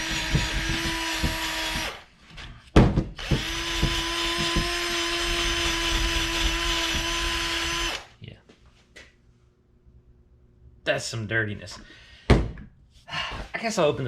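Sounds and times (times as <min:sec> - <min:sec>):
loud knock: 0:00.0 - 0:01.9, 0:02.8 - 0:04.8, 0:12.3 - 0:12.7.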